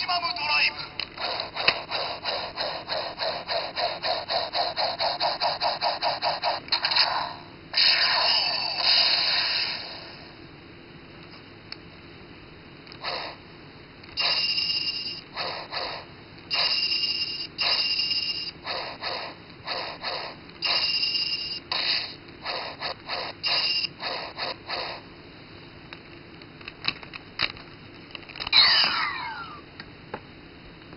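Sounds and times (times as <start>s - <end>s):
toy sword electronic sound effects: 0.0s - 10.1s, 14.2s - 25.0s, 28.5s - 29.6s.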